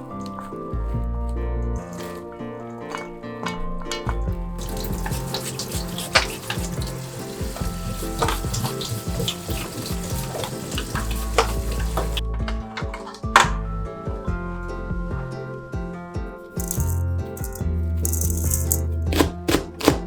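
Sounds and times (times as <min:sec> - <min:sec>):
food sizzling in a frying pan: 0:04.6 - 0:12.2
utensil clicking against pan: 0:16.6 - 0:20.0.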